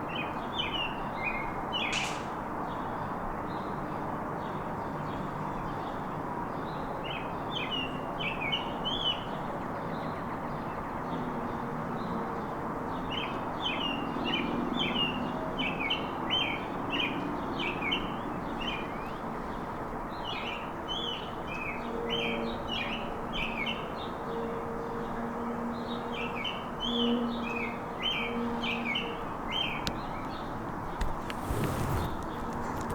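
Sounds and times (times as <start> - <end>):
songbirds chirping: 25.8 - 32.9.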